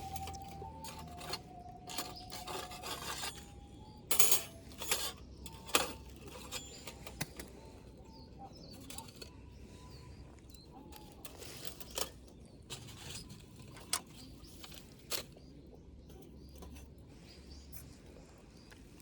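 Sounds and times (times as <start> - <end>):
faint thin whistling tones: 0.0 - 14.8
things being handled: 0.0 - 15.5.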